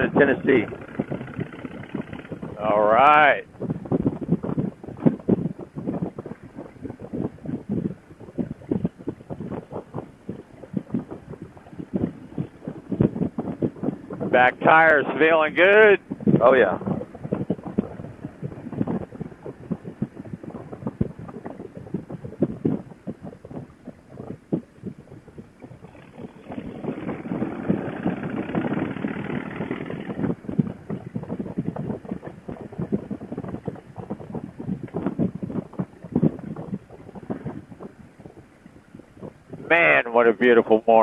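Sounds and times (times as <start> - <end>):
wind buffeting helmet microphone: 0.0 - 41.0.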